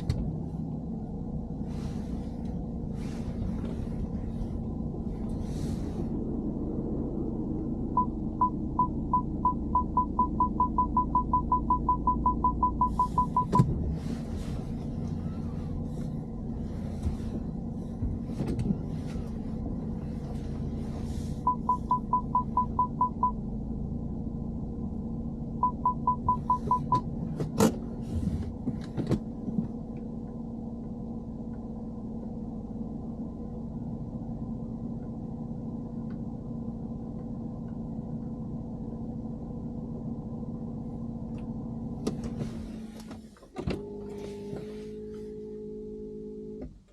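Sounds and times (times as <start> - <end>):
car engine hum: 0.0 - 46.9
parking sensor beeping: 7.9 - 13.8, 21.4 - 23.4, 25.6 - 27.1.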